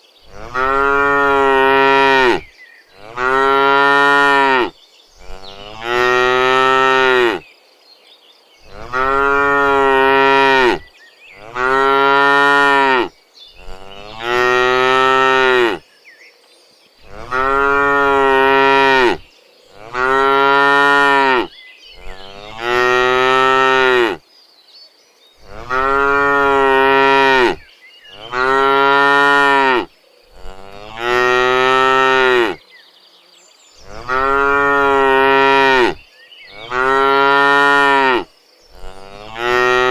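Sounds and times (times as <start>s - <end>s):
cattle mooing: 0.3s - 2.4s, 3.0s - 7.4s, 8.7s - 10.8s, 11.4s - 15.8s, 17.0s - 19.2s, 19.8s - 24.2s, 25.4s - 27.6s, 28.2s - 32.6s, 33.9s - 36.0s, 36.6s - 38.2s, 38.8s - 39.9s.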